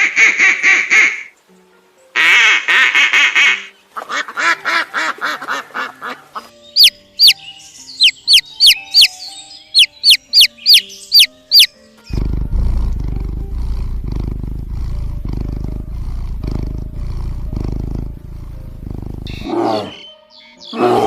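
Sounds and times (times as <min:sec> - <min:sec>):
sharp high chirps: 0:06.7 - 0:11.7
big cat growling: 0:12.1 - 0:20.0.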